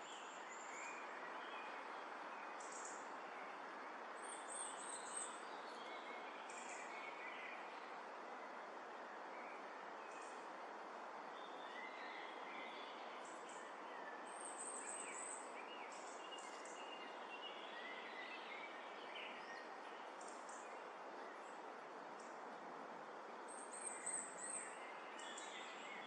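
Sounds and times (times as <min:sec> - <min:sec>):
steady background hiss: 0:00.0 - 0:26.0
woodland birds chirping: 0:11.4 - 0:21.6.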